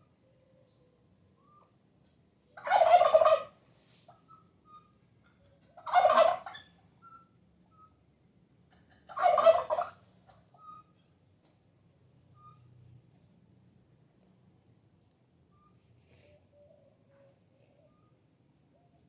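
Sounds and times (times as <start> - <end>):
turkey gobbling: 2.6 - 3.6, 5.6 - 6.7, 8.8 - 10.9.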